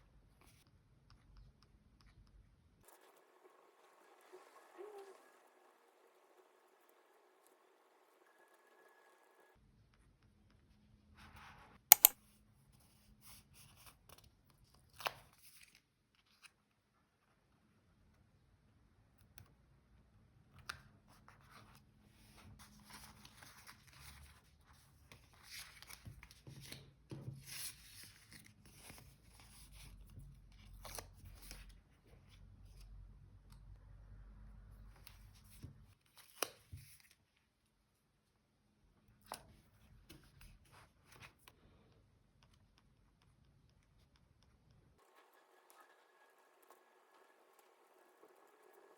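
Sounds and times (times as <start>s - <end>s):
sharp double click: 11.9s - 12.2s
paper rustling and crinkling: 21.5s - 29.9s.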